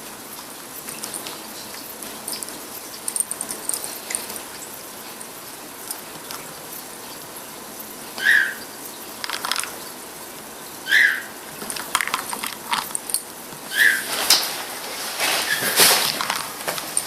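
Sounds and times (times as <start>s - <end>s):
high chirp-like animal calls: 8.2s - 8.7s, 10.8s - 11.4s, 13.7s - 14.1s
light clicking and rattling: 9.2s - 9.8s, 11.6s - 13.3s.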